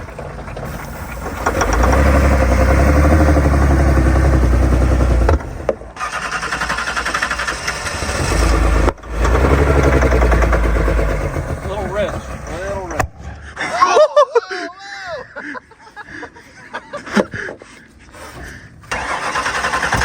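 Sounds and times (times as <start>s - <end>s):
car engine cranking: 0.0s - 13.2s, 18.4s - 20.0s.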